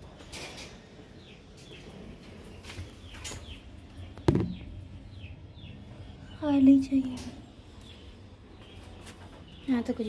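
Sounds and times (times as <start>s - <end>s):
small birds chirping: 0.6s - 10.0s
sharp knock: 4.3s - 4.7s.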